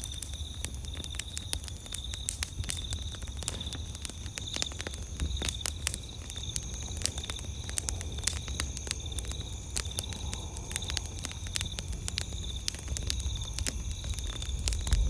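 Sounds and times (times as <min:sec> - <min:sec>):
campfire crackling and popping: 0:00.0 - 0:15.0
night insects trilling: 0:00.0 - 0:15.0.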